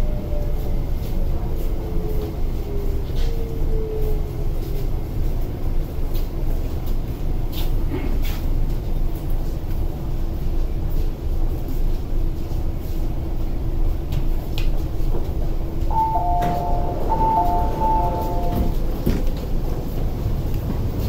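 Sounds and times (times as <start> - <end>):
train interior rumble: 0.0 - 21.0
train doors sliding open: 15.1 - 21.0
two-note door chime: 15.9 - 18.8.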